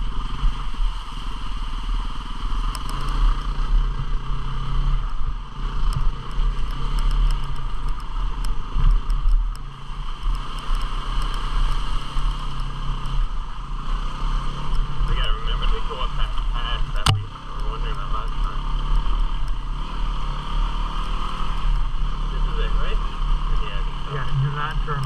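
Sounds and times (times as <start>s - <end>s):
motorcycle engine running: 0.0s - 25.0s
light ticks and clatter: 2.6s - 4.2s, 5.1s - 13.5s, 14.4s - 19.8s.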